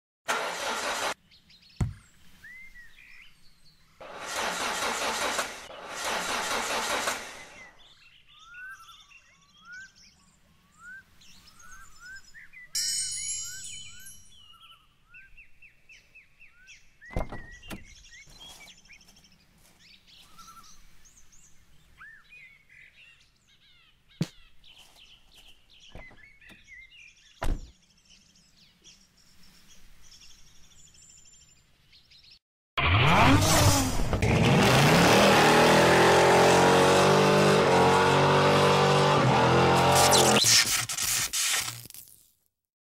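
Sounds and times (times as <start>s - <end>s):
small birds chirping: 1.2s - 4.0s, 7.4s - 32.4s
sharp knocks: 1.8s - 2.1s.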